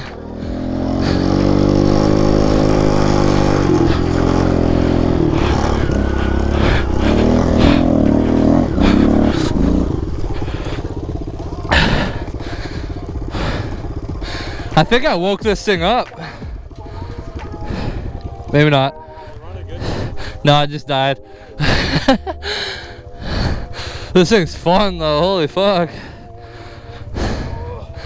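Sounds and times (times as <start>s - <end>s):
small motorbike engine revving: 0.0s - 20.7s, 22.8s - 28.0s.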